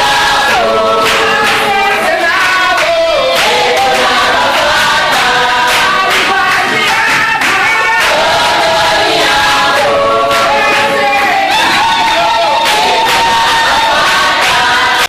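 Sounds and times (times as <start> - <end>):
group singing in chorus: 0.0 - 15.0.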